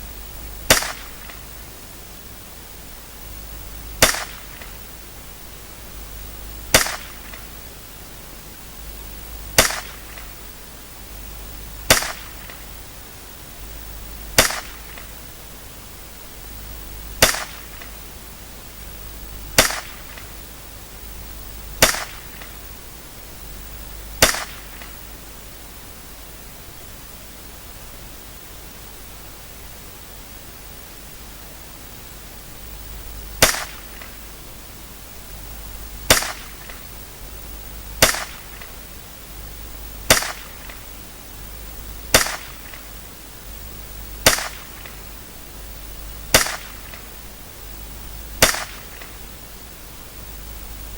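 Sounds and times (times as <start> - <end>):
rifle shots: 0.6 - 1.6, 4.0 - 4.9, 6.7 - 7.5, 9.5 - 10.4, 11.9 - 12.6, 14.4 - 15.2, 17.2 - 18.0, 19.6 - 20.4, 21.8 - 22.6, 24.2 - 25.1, 33.4 - 34.2, 36.0 - 36.9, 38.0 - 38.8, 40.1 - 40.9, 42.1 - 43.0, 44.2 - 45.2, 46.3 - 47.2, 48.4 - 49.2.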